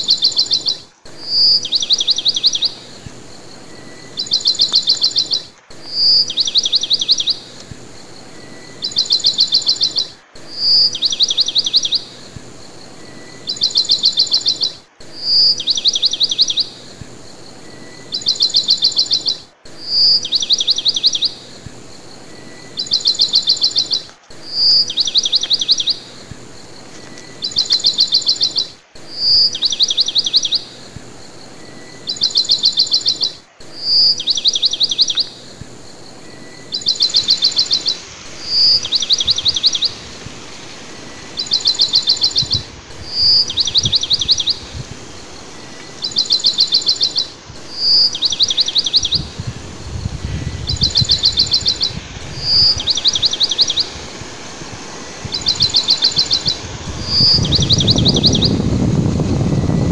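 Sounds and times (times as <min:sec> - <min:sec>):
bird singing note and trill: 0:00.0 - 0:59.9
steady hiss: 0:00.0 - 0:59.9.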